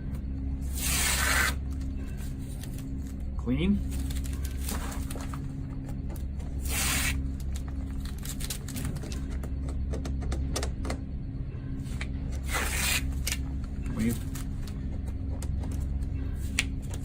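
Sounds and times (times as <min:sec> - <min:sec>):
steady low hum: 0:00.0 - 0:17.0
masking tape ripping: 0:00.8 - 0:01.6, 0:06.6 - 0:07.2, 0:12.5 - 0:13.4.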